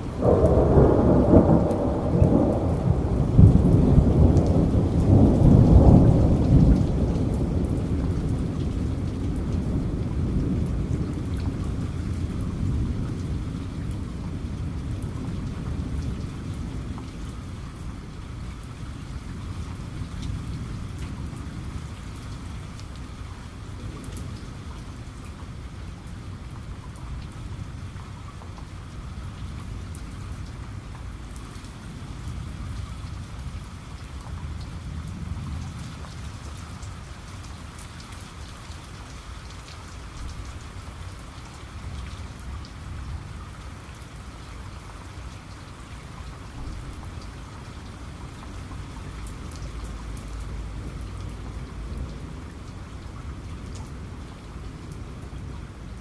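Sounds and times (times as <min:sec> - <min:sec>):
rolling thunder rumble: 0:00.0 - 0:18.2
raindrops pattering on a surface: 0:00.0 - 0:56.0
steady rain: 0:00.0 - 0:56.0.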